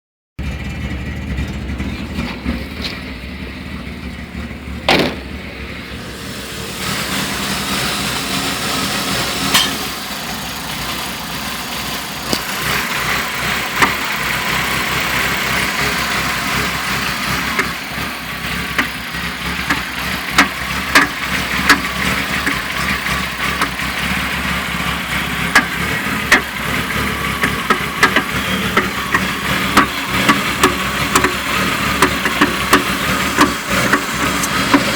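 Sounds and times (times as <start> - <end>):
car engine running: 0.4 - 34.9
sharp irregular engine clicks: 9.5 - 34.9.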